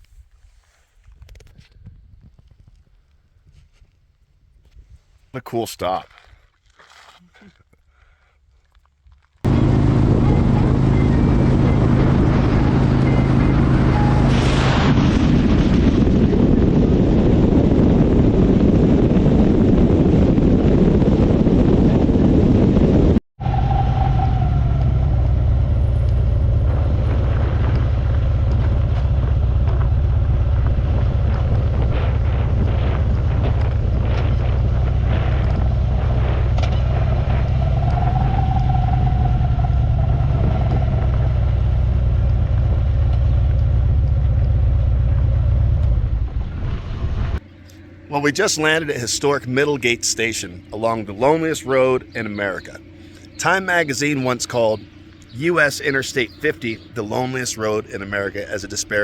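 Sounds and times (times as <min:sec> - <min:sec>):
wind buffeting microphone: 0:00.0 - 0:05.3, 0:09.4 - 0:47.4
motorcycle engine and road rumble: 0:08.8 - 0:59.0.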